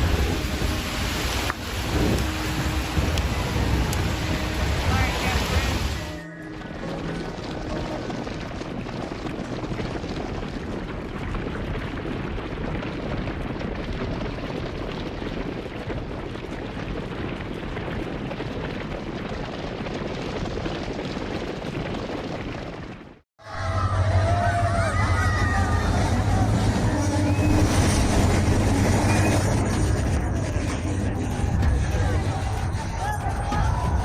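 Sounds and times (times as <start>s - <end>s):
moving train rushing and rumbling: 0.0s - 11.1s, 23.4s - 34.0s.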